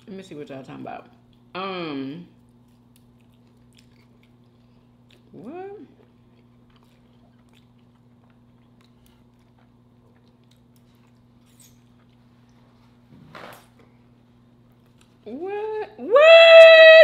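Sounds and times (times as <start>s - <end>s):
steady low hum: 0.0s - 17.0s
chewing and mouth clicks: 2.4s - 12.6s.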